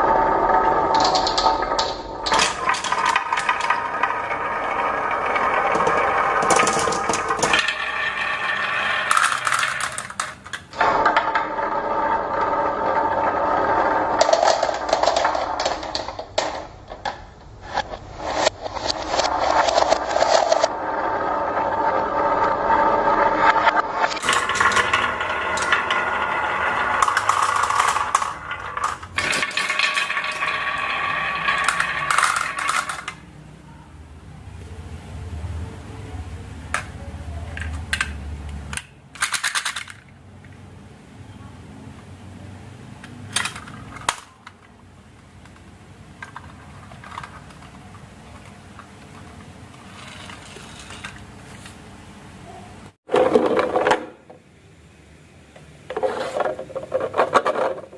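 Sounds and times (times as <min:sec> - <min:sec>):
marbles rolling down plastic track: 0:00.0 - 0:33.3, 0:37.5 - 0:40.1, 0:43.0 - 0:51.3, 0:55.9 - 0:57.9.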